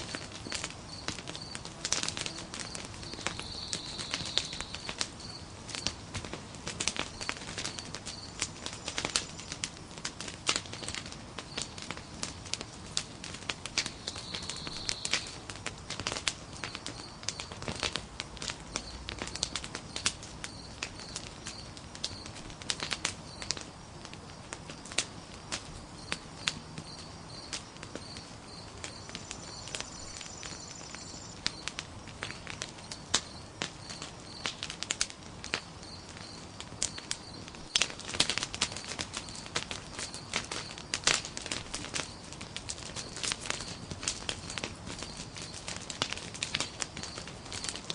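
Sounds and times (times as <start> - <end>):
log fire crackling and popping: 0.0 - 47.9.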